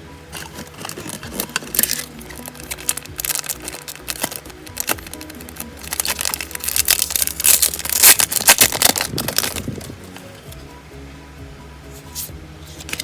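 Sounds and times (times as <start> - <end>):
background music: 0.0 - 13.0
plastic wrapper crinkling: 0.3 - 10.6.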